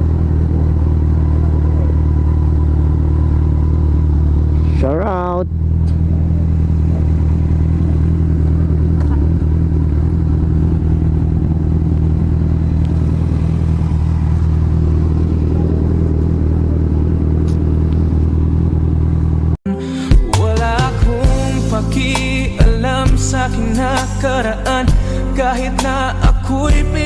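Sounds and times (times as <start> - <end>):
rush of riding noise: 0.0 - 19.6
motorcycle engine running: 0.0 - 27.0.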